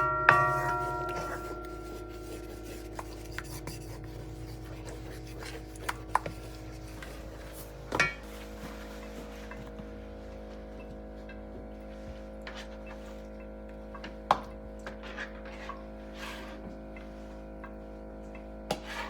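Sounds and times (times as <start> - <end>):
kitchen clatter: 0.0 - 8.4
utensils clinking: 0.0 - 8.4.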